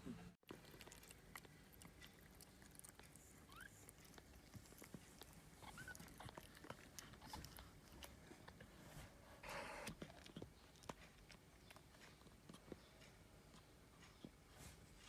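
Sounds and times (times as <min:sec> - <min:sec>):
cat licking: 0:00.5 - 0:08.8
kitten squeaking: 0:03.4 - 0:04.1, 0:05.6 - 0:06.5.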